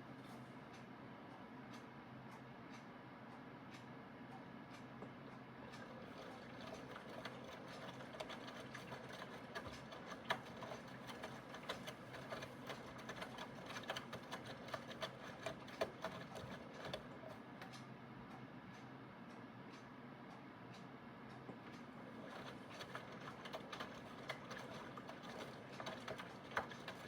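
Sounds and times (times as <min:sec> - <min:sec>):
washing machine motor hum: 0:05.3 - 0:17.7, 0:21.6 - 0:27.0.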